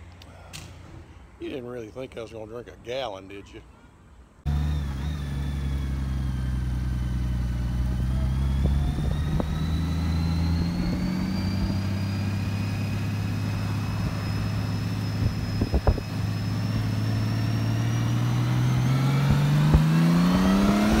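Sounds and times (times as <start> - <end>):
motorcycle engine running: 4.5 - 21.0.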